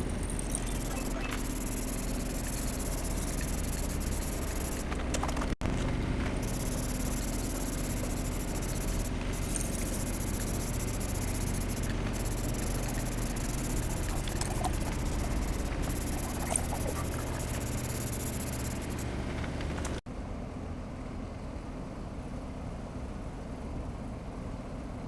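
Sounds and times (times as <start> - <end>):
spray paint can hissing: 0.0 - 4.8, 6.4 - 19.0
low steady rumble: 0.0 - 25.0.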